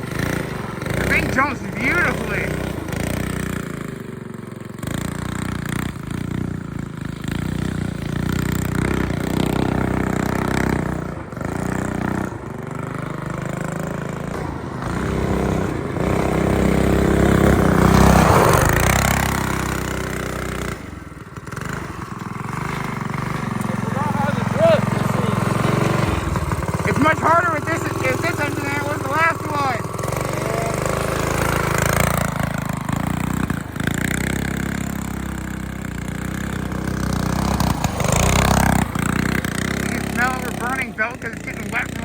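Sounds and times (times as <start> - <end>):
off-road vehicle engine revving: 0.0 - 42.0.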